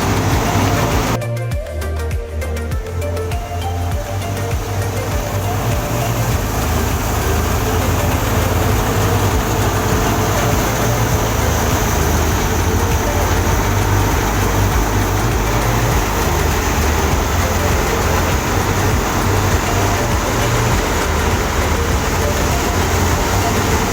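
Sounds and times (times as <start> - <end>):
heavy machinery engine rumbling: 0.0 - 1.2, 2.4 - 23.9.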